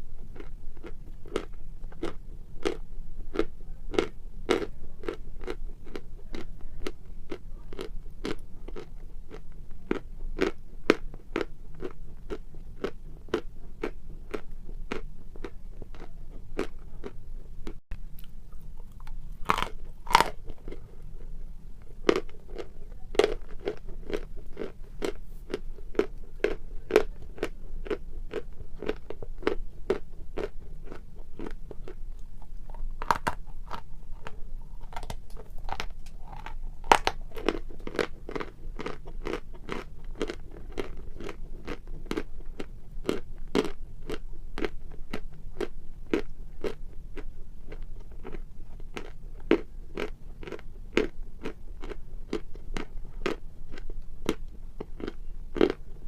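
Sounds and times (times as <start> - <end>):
chewing hard chalk: 21.8 - 55.8.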